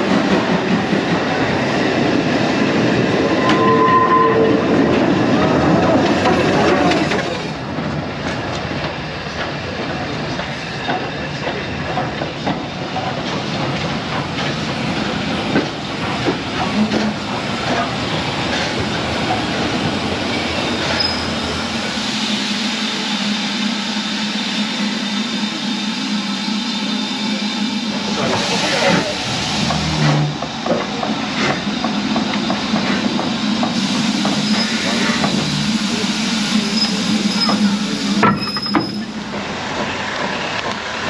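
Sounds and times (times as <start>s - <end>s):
wheel squeal: 3.4s - 4.8s, 20.9s - 21.5s, 36.6s - 39.2s
train wheels clicking over rail joints: 4.9s - 21.5s, 27.9s - 41.0s.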